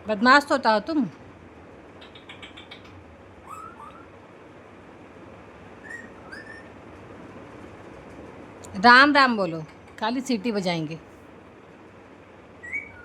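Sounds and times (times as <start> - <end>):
parrot whistling: 2.1 - 4.1, 5.8 - 6.8, 12.6 - 13.0.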